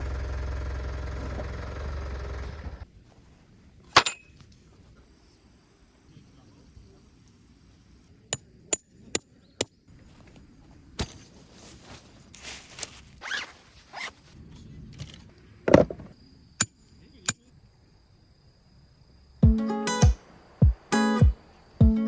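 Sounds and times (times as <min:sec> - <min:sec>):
zipper pulled: 0:12.4 - 0:14.3
handling clicks and knocks: 0:15.7 - 0:16.1.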